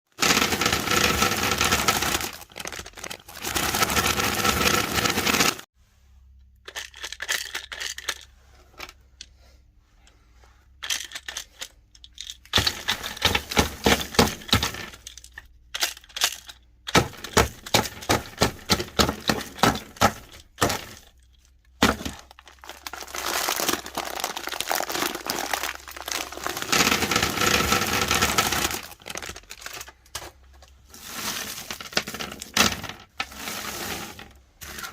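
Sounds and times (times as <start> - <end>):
meat grinder crunching candy: 0.1 - 5.6, 21.8 - 29.8.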